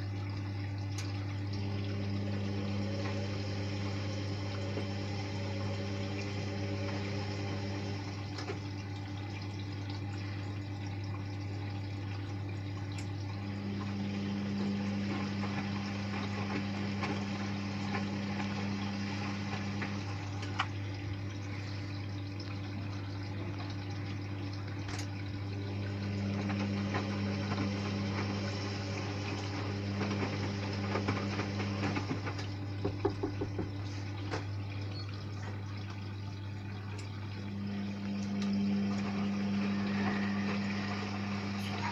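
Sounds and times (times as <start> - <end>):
low electrical hum: 0.0 - 41.9
water flowing in washing machine: 0.0 - 41.9.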